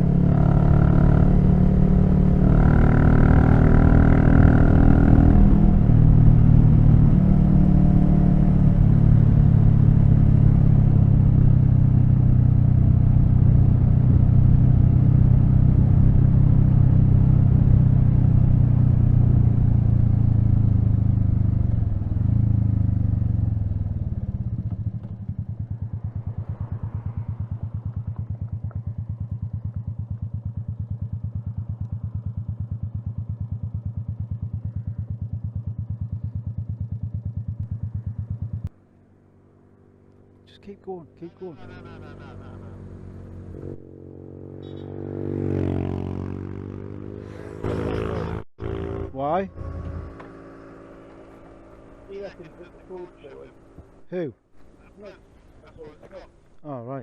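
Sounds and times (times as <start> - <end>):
motorcycle engine running: 0.0 - 40.5, 41.1 - 56.7
road and wind noise: 0.0 - 57.0
motorcycle engine idling: 20.1 - 39.1.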